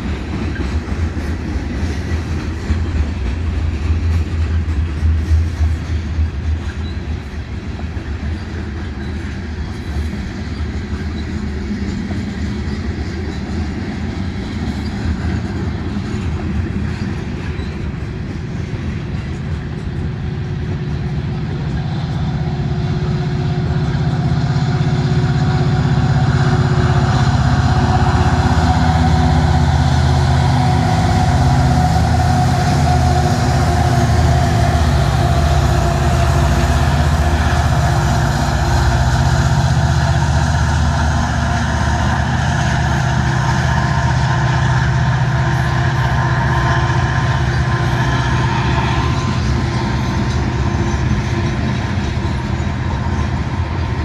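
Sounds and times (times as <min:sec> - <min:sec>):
diesel locomotive engines: 0:00.0 - 0:54.0
freight cars rolling on rails: 0:00.0 - 0:54.0.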